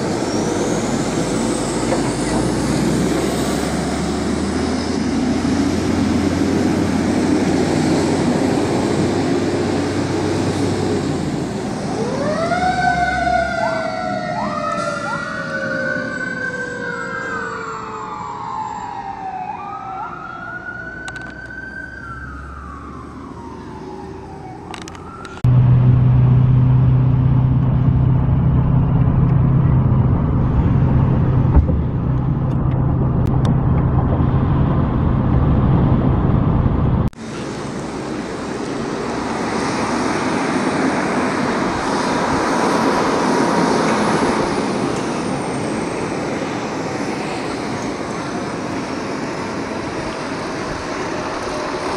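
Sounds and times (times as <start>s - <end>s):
fire truck sirens wailing: 0.0s - 25.7s, 37.0s - 51.9s
fire truck engine hum: 0.0s - 51.9s
traffic noise: 0.0s - 51.9s.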